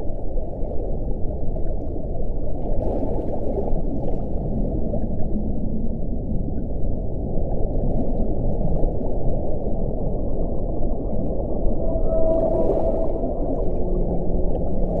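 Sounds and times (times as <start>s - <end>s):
wind blowing: 4.4s - 15.0s.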